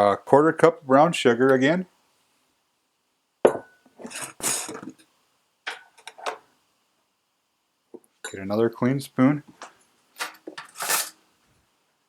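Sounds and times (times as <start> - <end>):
rustling scrapes: 4.0 - 4.8, 10.6 - 11.2.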